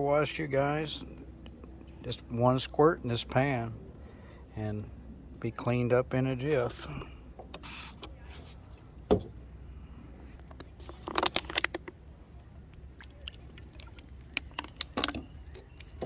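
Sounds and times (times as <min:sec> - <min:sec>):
spray hiss: 0:07.6 - 0:08.0.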